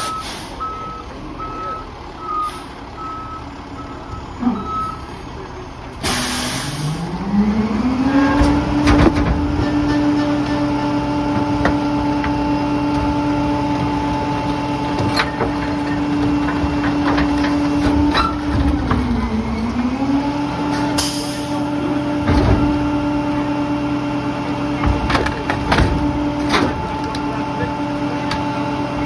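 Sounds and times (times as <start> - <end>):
diesel engine running: 0.0 - 29.0
debris knocking: 8.4 - 19.3.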